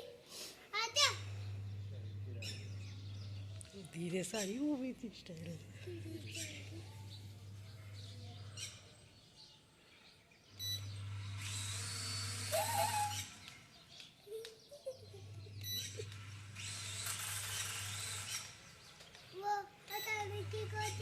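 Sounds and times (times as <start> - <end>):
toy drone propellers whirring: 10.6 - 21.0.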